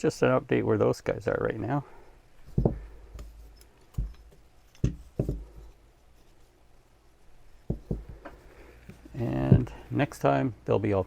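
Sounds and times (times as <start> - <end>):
short knocks and thuds: 2.4 - 5.8, 7.7 - 9.8.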